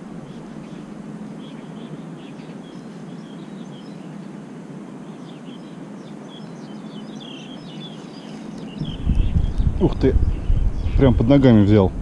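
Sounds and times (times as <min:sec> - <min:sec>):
low background hum: 0:00.0 - 0:12.0
small birds chirping: 0:00.0 - 0:12.0.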